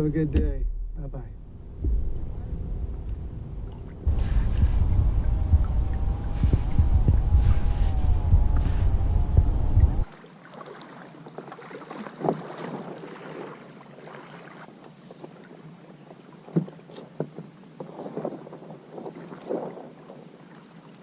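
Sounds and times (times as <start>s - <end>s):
wind rumbling on microphone: 0.0s - 10.1s
water lapping: 1.6s - 21.0s
kayak splashes and knocks: 1.8s - 20.7s.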